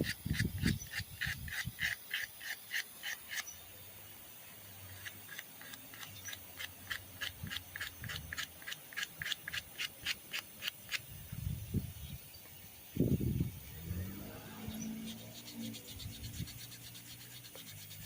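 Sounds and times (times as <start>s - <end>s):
sandpaper rubbing by hand: 0.0s - 3.5s, 5.0s - 11.1s, 15.0s - 18.0s.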